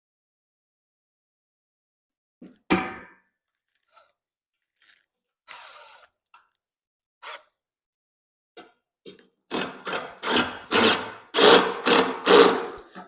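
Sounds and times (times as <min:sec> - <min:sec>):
sharp ringing knock: 0:02.7 - 0:03.2.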